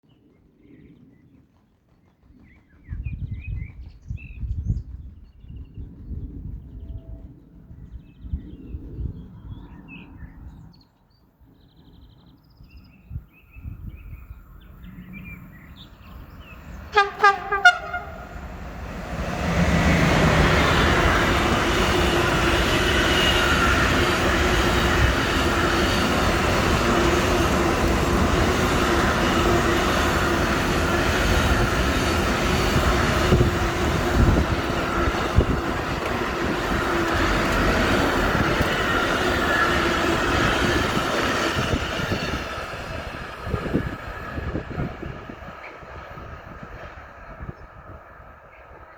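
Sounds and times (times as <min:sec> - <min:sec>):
train wheels rumbling on rails: 0:00.8 - 0:08.6, 0:13.8 - 0:48.9
train whine: 0:13.6 - 0:48.9
train horn blasts: 0:16.9 - 0:18.6.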